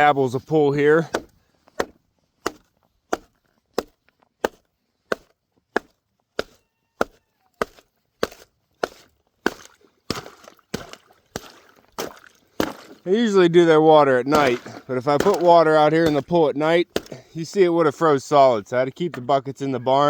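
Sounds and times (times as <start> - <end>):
strikes breaking ice: 8.2 - 13.2, 14.2 - 17.2
ice cracking: 9.5 - 17.2.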